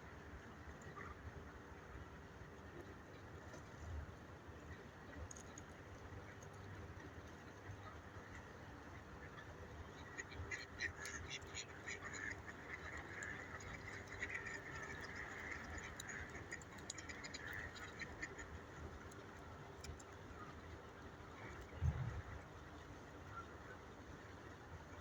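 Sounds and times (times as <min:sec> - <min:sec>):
ducks quacking softly: 0:07.6 - 0:18.8.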